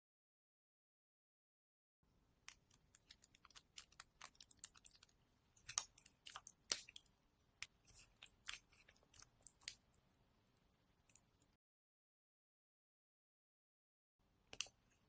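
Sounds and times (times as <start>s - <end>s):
wet chewing and crunching: 2.4s - 10.0s.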